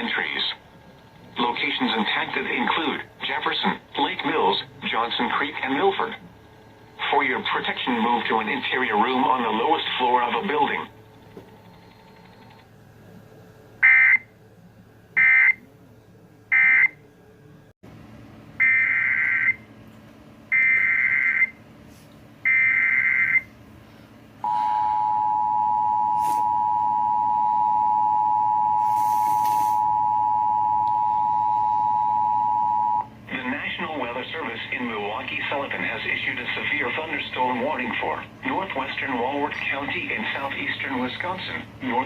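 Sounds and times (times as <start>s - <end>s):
two-tone attention signal: 24.4s - 33.1s.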